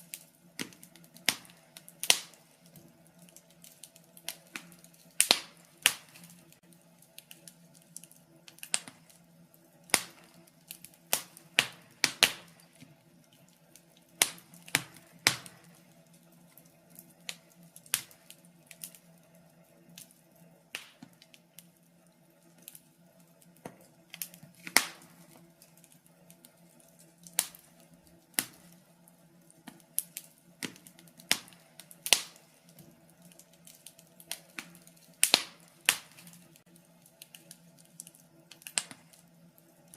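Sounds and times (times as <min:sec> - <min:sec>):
fireplace fire crackling: 0:00.0 - 0:39.9.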